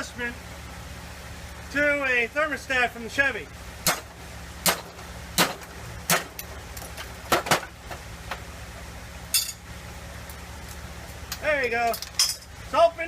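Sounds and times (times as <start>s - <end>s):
steady low hum: 0.0s - 13.0s
metal-on-metal taps and clinks: 9.3s - 9.6s, 11.9s - 12.5s.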